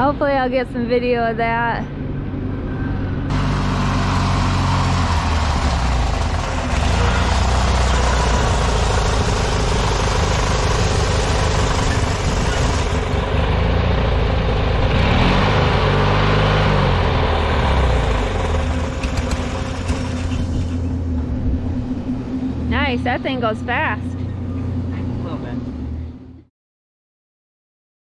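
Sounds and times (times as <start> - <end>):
lawn tractor engine running: 3.3 - 21.9.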